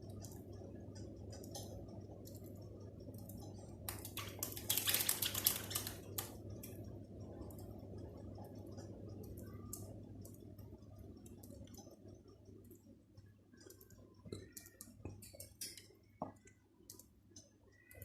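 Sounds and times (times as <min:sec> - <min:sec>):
birds pecking at food: 0:03.1 - 0:06.6, 0:13.5 - 0:18.0.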